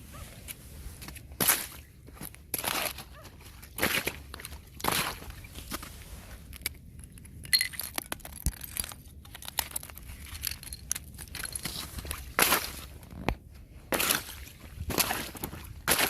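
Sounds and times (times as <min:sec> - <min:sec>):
ice crunching: 0:00.9 - 0:06.5, 0:07.7 - 0:13.3, 0:13.9 - 0:16.0
ice shards clicking and tinkling: 0:07.0 - 0:12.1.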